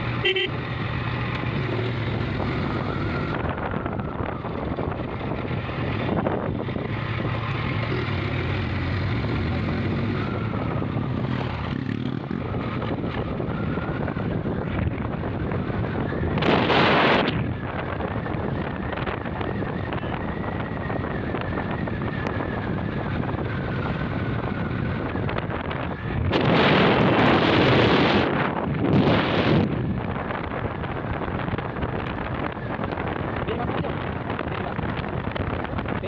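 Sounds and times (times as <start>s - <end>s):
motorcycle engine running: 0.0s - 36.0s
wind rushing over microphone: 1.4s - 36.0s.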